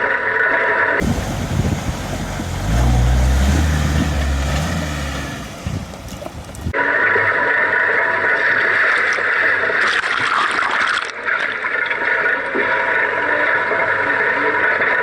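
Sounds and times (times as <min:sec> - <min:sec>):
river water rushing and splashing: 0:01.0 - 0:06.7.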